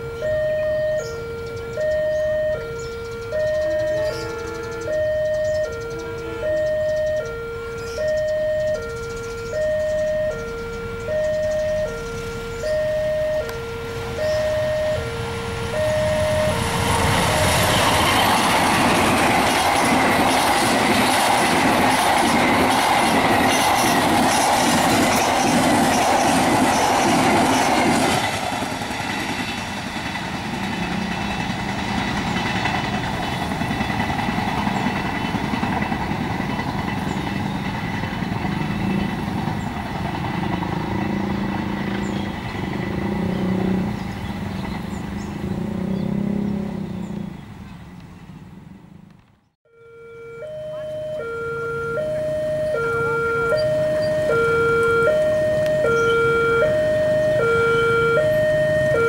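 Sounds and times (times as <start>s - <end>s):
train rumble: 0.0s - 49.5s
wheels clacking over rail joints: 16.0s - 45.4s.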